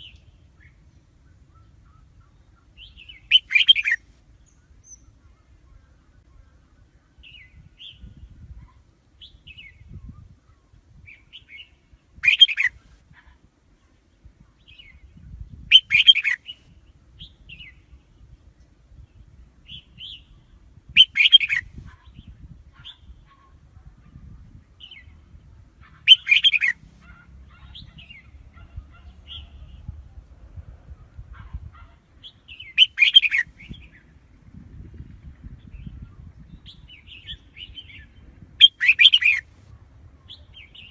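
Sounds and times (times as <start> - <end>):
soft bird chirps: 0.0 - 12.8, 13.8 - 30.0, 31.4 - 34.1, 35.5 - 39.5.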